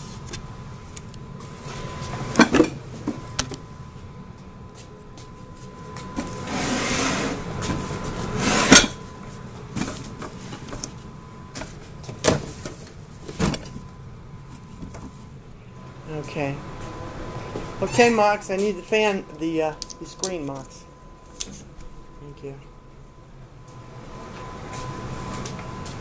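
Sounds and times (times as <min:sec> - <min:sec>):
scraping rub: 0:06.4 - 0:07.4, 0:08.2 - 0:08.9.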